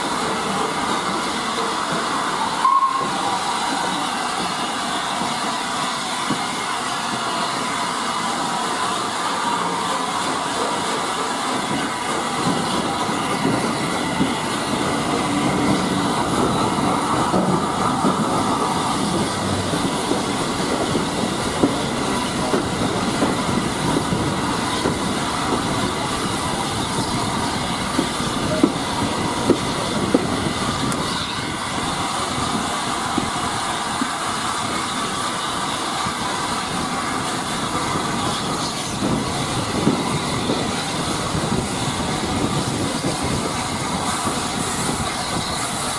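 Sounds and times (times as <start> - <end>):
train wheels running on rail: 0.0 - 45.9
wheels clicking over rail joints: 10.4 - 45.9.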